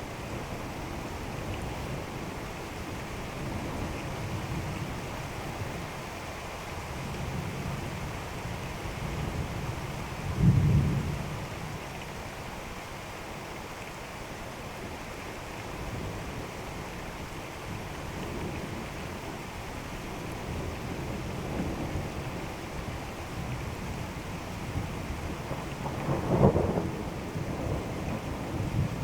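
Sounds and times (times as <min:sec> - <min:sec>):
steady rain: 0:00.0 - 0:29.0
thunder rumbling: 0:24.7 - 0:29.0.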